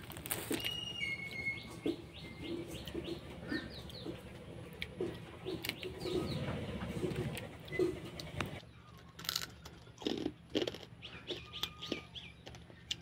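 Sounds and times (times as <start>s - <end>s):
small birds chirping: 0.4s - 10.1s, 10.8s - 13.0s
low hum: 0.7s - 9.9s.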